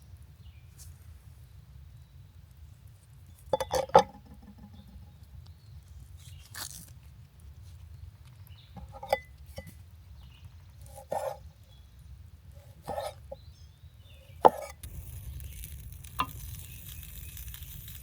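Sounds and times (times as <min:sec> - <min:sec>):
low steady rumble: 0:11.5 - 0:18.0.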